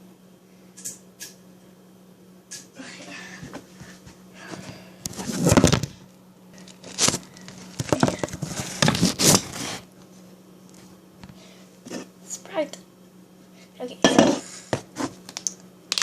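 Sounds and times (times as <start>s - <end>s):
steady low hum: 0.0s - 16.0s
rustling and scraping: 3.5s - 6.0s, 6.6s - 10.9s.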